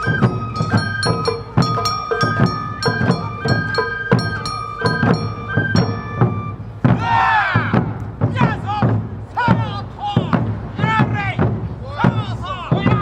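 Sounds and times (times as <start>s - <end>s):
bamboo flute melody: 0.0s - 9.6s
drums: 0.0s - 13.0s.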